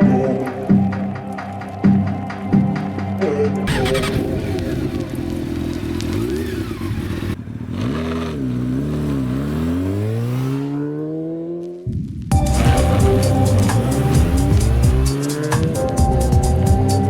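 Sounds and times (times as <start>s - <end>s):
motorcycle engine revving: 3.6s - 17.0s.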